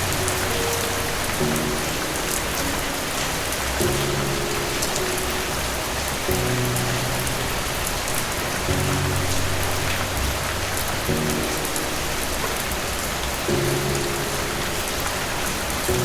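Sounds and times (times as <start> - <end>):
rain hissing: 0.0 - 16.0
soft low music chords: 0.0 - 16.0.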